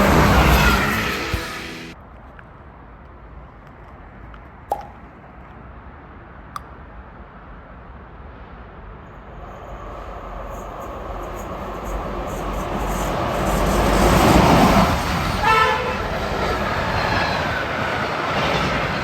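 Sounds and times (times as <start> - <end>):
approaching train: 0.0 - 2.0, 7.0 - 19.0
high metallic rail whine: 0.0 - 2.0
low trackside rumble: 0.0 - 18.2.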